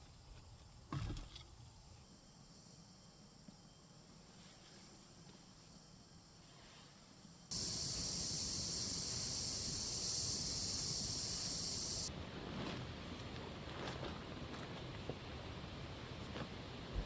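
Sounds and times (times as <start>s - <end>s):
loud high-pitched hiss: 7.5s - 12.1s.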